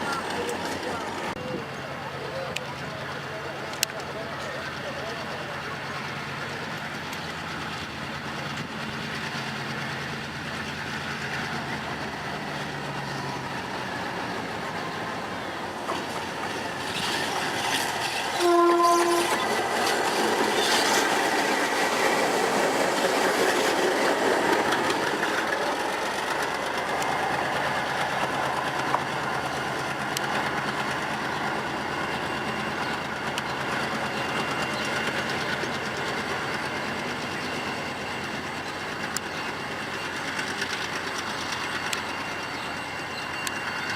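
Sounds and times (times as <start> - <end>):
wheels clattering on rails: 0.0 - 1.4, 2.4 - 43.9
diesel locomotive engine running: 0.0 - 43.9
locomotive horn blast: 18.3 - 19.6.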